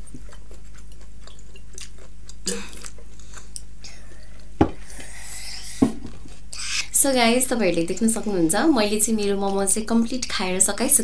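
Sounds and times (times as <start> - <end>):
child chewing noodles: 0.0 - 6.9
low steady hum: 0.0 - 11.0.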